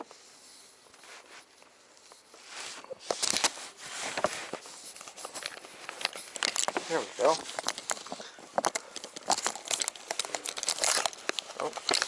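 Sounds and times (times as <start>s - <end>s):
faint rustling: 0.0s - 12.0s.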